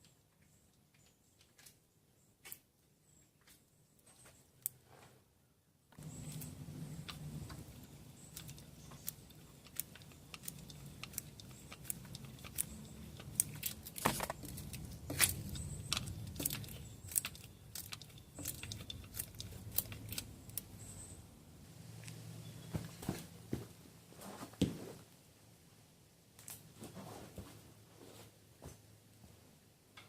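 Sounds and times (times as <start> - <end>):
steady low hum: 6.0 - 24.2.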